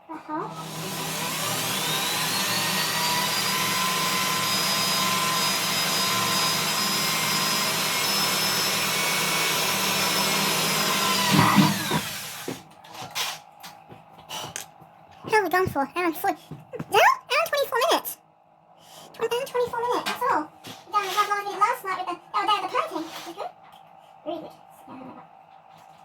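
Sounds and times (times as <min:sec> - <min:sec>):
electric drill drilling: 0:00.5 - 0:12.6.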